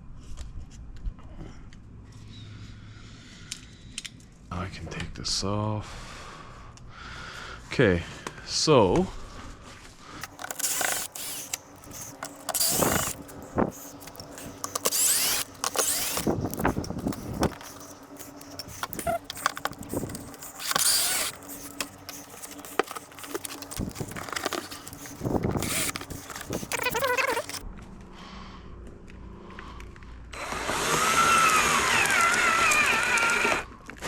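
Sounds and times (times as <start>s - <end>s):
scraping and rustling: 10.2s - 27.6s
tools clicking and knocking: 10.2s - 27.6s.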